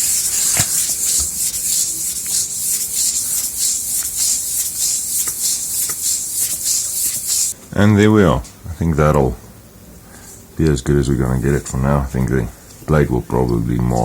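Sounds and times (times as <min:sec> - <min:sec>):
metal plate rubbing on abrasive: 0:00.0 - 0:07.6
small scraping strokes: 0:00.0 - 0:07.6.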